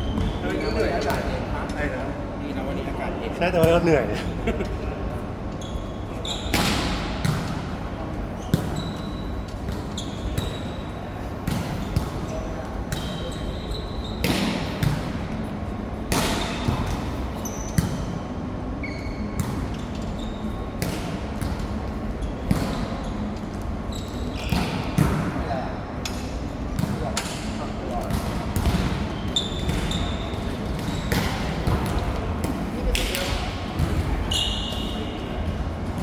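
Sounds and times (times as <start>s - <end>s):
sneakers squeaking on floor: 0.0s - 1.5s, 5.6s - 15.0s, 16.3s - 25.0s, 28.3s - 36.0s.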